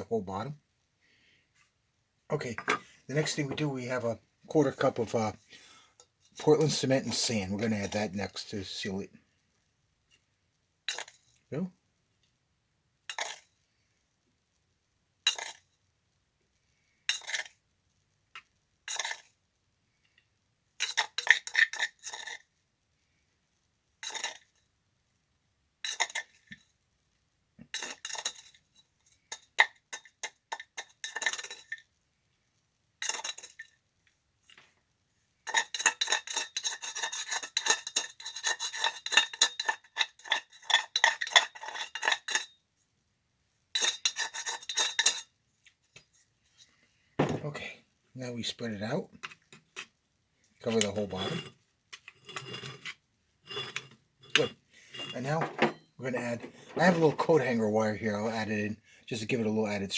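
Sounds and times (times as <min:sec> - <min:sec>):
spoon scraping and clinking: 0:13.1 - 0:13.5, 0:15.3 - 0:15.6, 0:17.1 - 0:17.5, 0:18.9 - 0:19.3, 0:20.8 - 0:22.4, 0:24.0 - 0:24.5, 0:25.8 - 0:26.6, 0:27.7 - 0:28.6, 0:29.3 - 0:31.8, 0:33.0 - 0:33.7, 0:35.5 - 0:42.5, 0:43.7 - 0:45.3, 0:50.7 - 0:57.6.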